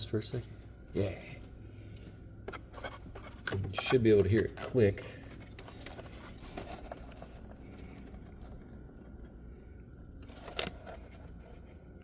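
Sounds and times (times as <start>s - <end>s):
handling and rustling noises: 2.4s - 12.0s.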